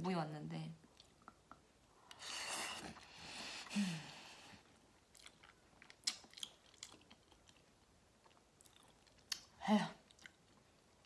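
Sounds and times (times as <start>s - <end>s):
person chewing and biting: 5.1s - 9.5s.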